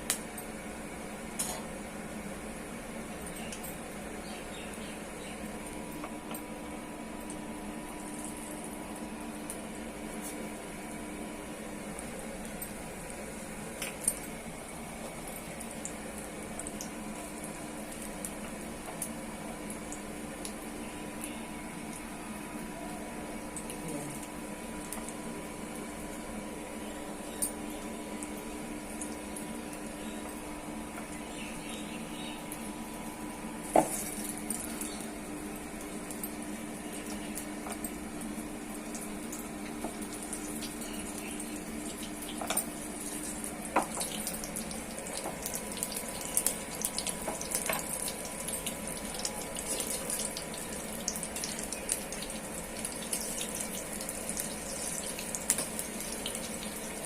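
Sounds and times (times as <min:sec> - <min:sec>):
fritters deep-frying in hot oil: 0:00.0 - 0:31.6, 0:32.4 - 0:57.0
low steady hum: 0:00.0 - 0:57.0.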